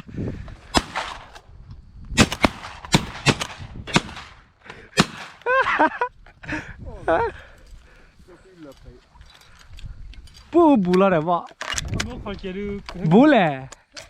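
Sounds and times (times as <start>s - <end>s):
shotgun blasts: 0.7s - 1.4s, 2.2s - 5.4s.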